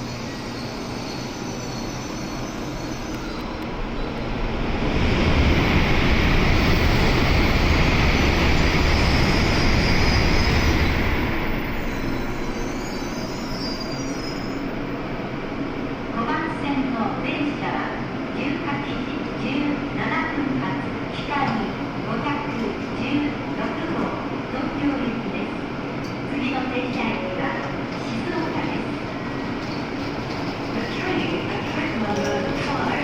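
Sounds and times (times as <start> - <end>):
train rushing rumble: 2.6 - 12.5, 19.9 - 33.0.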